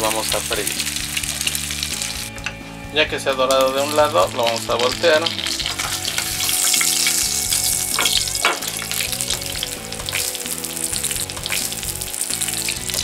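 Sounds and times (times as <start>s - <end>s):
sandwich sizzling in a pan: 0.0s - 2.3s, 3.5s - 13.0s
spatula scraping and knocking pan: 5.2s - 10.2s.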